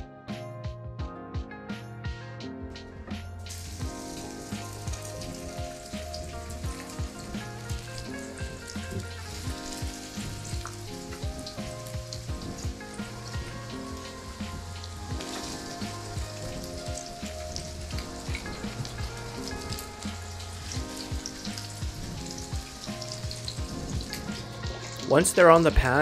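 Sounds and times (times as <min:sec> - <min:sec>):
background music: 0:00.0 - 0:26.0
food sizzling in oil: 0:03.2 - 0:26.0.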